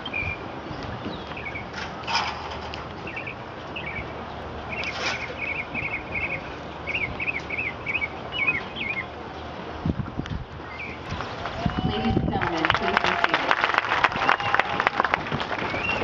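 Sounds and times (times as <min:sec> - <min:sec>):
bird chirping: 0:00.0 - 0:01.7, 0:03.0 - 0:09.5, 0:10.6 - 0:11.3.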